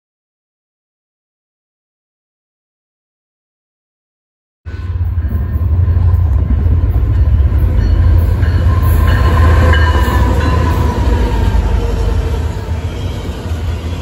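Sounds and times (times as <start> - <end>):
diesel locomotives rumbling past: 4.7 - 14.0.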